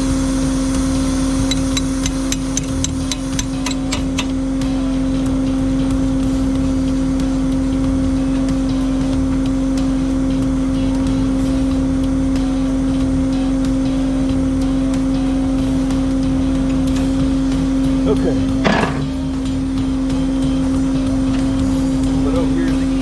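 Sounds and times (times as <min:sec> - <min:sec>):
faint ticking: 0:01.4 - 0:04.4.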